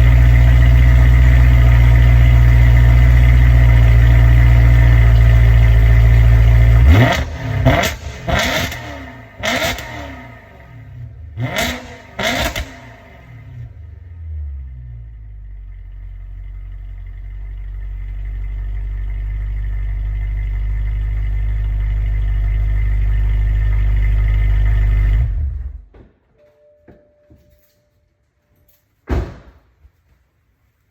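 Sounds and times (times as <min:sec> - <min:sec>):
car engine idling and revving: 0:00.0 - 0:25.9.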